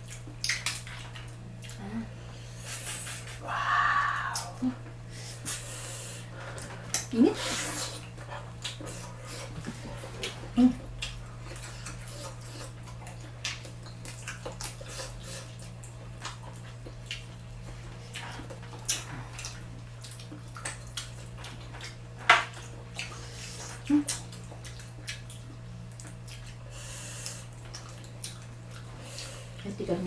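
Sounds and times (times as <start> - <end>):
wet chewing and clicks: 0.0 - 1.8, 8.0 - 29.7
low hum: 0.0 - 11.9.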